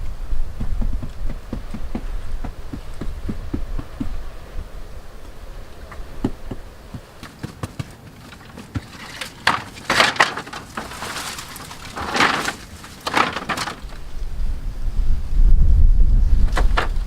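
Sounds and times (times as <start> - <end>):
knocks and taps on bamboo: 0.6 - 4.2
rough strokes on bamboo: 8.1 - 14.3.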